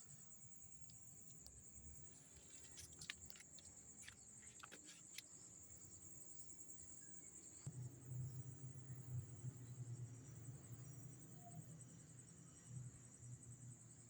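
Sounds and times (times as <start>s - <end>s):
crickets trilling: 0.1s - 7.7s.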